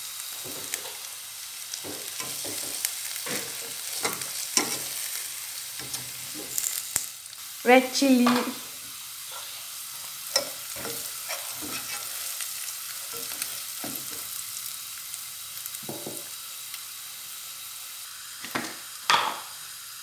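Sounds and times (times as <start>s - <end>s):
onion sizzling in hot oil: 0.0s - 20.0s
spatula scraping and knocking pot: 1.8s - 4.9s, 10.3s - 12.2s.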